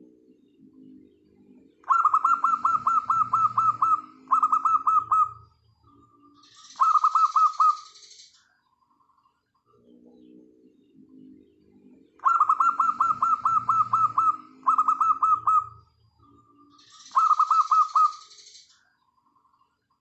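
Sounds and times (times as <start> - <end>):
doves cooing softly: 1.8 - 5.5, 6.7 - 7.8, 12.2 - 15.9, 17.0 - 18.2.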